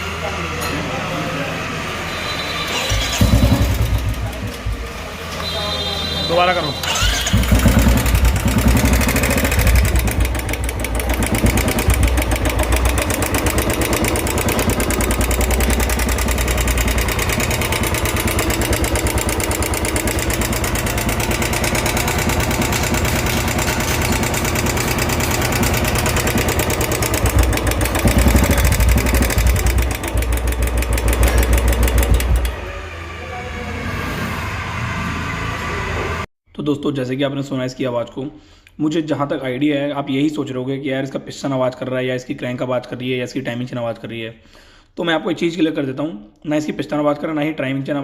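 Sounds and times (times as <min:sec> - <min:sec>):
motorcycle engine running: 0:02.7 - 0:05.8, 0:06.8 - 0:32.9
rapid engine ticking: 0:02.9 - 0:05.0, 0:06.8 - 0:32.6.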